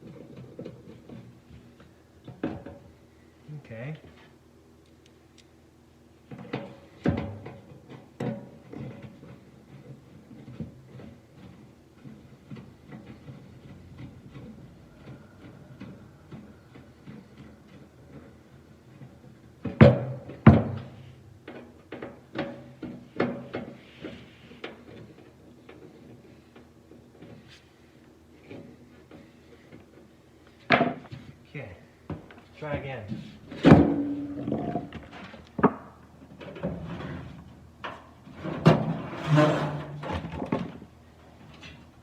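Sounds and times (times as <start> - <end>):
knocks and clatters of metal parts: 6.2 - 27.5, 32.1 - 41.9.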